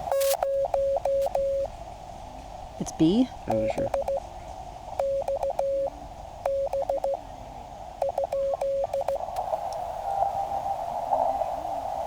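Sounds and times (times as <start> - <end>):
radio band hiss: 0.0 - 5.0, 7.0 - 12.0
morse code tone: 0.1 - 1.7, 3.5 - 4.2, 5.0 - 5.9, 6.5 - 7.2, 8.0 - 9.2.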